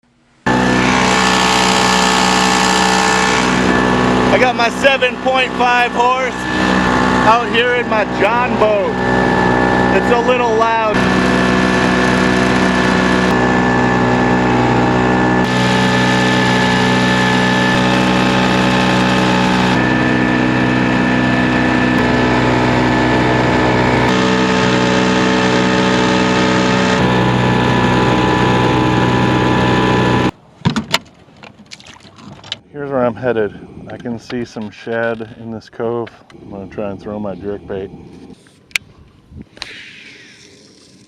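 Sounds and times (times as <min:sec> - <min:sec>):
outboard motor droning: 0:00.4 - 0:30.4.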